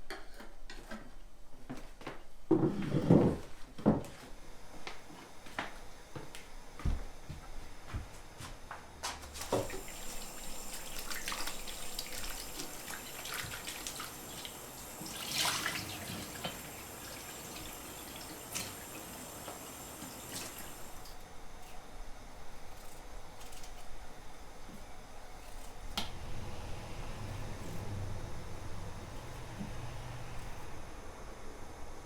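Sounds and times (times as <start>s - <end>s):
water running and splashing: 9.4s - 21.2s.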